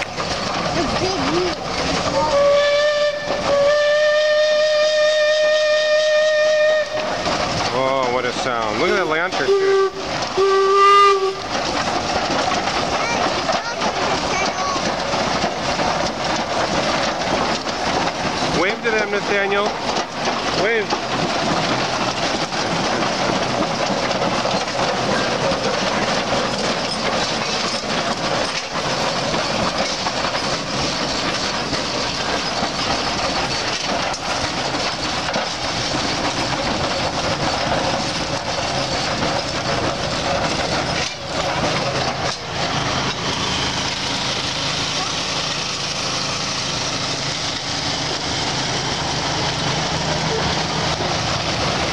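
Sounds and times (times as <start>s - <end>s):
old tractor engine running: 0.0s - 51.9s
wheels rolling: 0.0s - 51.9s
onlookers' voices: 12.8s - 15.1s.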